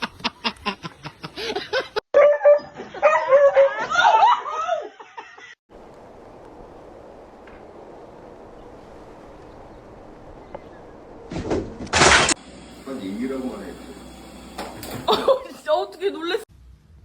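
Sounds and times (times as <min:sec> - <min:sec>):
people laughing: 0:00.0 - 0:02.0, 0:14.9 - 0:16.4.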